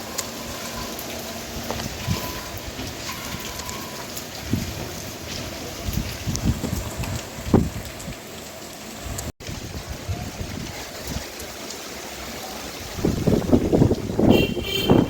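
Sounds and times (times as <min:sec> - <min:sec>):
heavy rain: 0:00.0 - 0:15.0
wind buffeting microphone: 0:01.5 - 0:03.6, 0:04.3 - 0:08.3, 0:09.0 - 0:11.4, 0:12.8 - 0:15.0.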